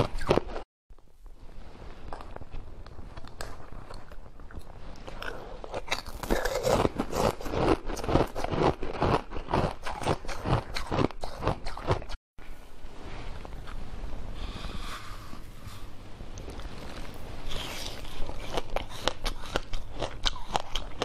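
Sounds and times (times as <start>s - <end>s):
ice being chewed: 2.1s - 12.2s, 16.4s - 21.0s.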